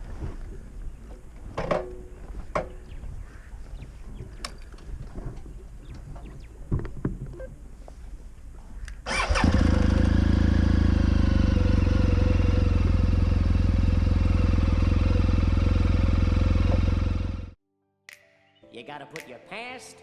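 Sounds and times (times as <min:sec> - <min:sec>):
motorcycle engine running: 0:09.1 - 0:17.6.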